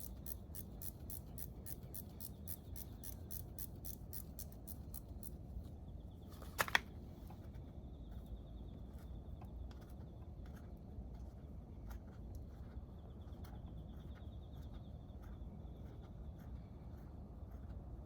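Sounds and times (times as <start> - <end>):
ratchet wrench clicking: 0.0 - 5.3.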